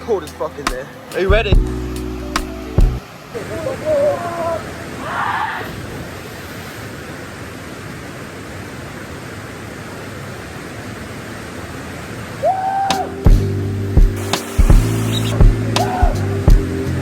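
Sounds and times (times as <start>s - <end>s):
waterfall roaring: 3.0s - 13.4s, 14.1s - 17.0s
rising call: 12.4s - 13.5s, 14.2s - 17.0s.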